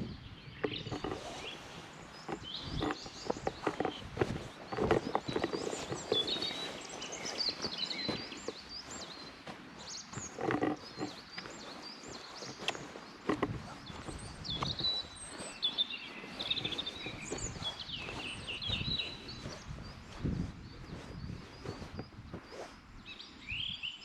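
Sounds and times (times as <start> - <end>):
footsteps on woodland trail: 0.0 - 23.7
songbirds chirping and singing: 0.0 - 24.0.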